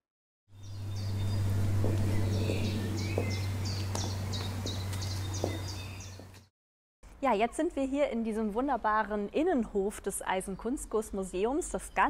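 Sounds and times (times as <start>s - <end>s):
small bird chirping: 0.5s - 6.3s
steady low hum: 0.6s - 6.3s
footsteps on stone paving: 1.8s - 6.5s.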